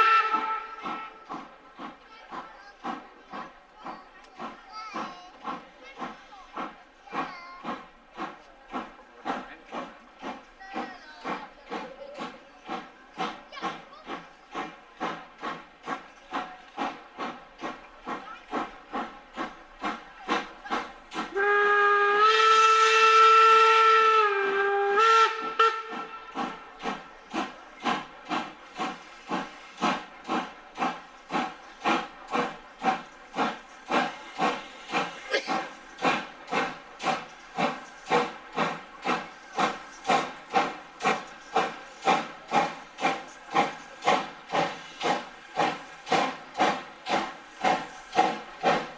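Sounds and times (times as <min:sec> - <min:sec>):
steam whistle blast: 0:00.0 - 0:01.3, 0:21.3 - 0:26.4
steam locomotive chuffing: 0:00.0 - 0:48.9.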